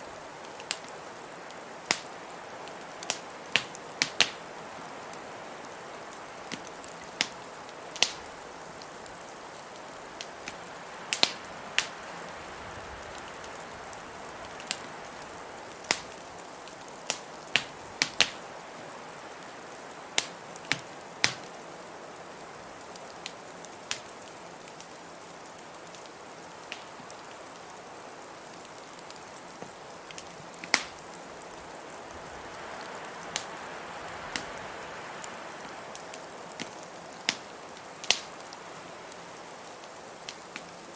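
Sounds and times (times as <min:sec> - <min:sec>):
blizzard wind hissing: 0:00.0 - 0:21.2, 0:29.8 - 0:39.8
wood fire crackling: 0:00.0 - 0:40.9.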